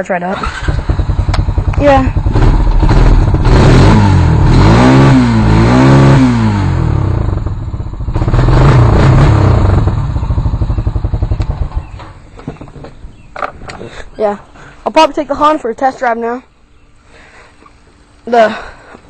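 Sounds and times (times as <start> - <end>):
atv engine revving: 0.3 - 13.8.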